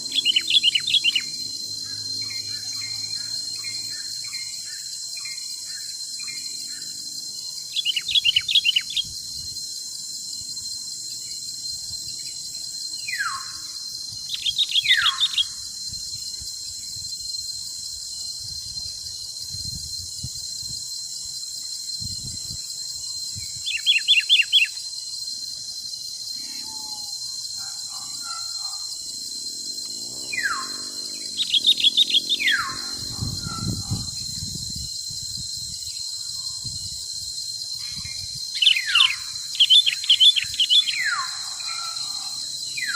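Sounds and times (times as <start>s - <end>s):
songbirds calling: 0.0s - 4.9s, 7.7s - 9.1s, 14.3s - 15.6s, 29.8s - 34.2s, 38.1s - 42.9s
high insect drone: 0.0s - 42.9s
downward sliding whistles: 29.7s - 37.3s
quick bird chirps: 30.4s - 34.1s.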